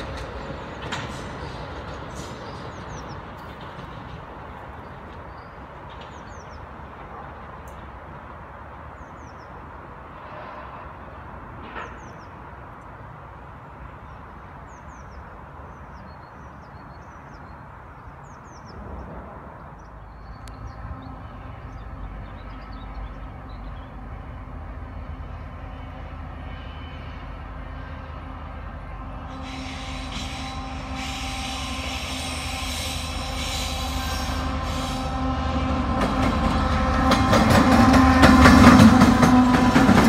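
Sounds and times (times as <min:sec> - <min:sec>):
locomotive engine humming: 0:00.0 - 0:18.6, 0:19.3 - 0:40.0
train rumbling away: 0:00.0 - 0:40.0
small birds chirping: 0:01.8 - 0:03.9.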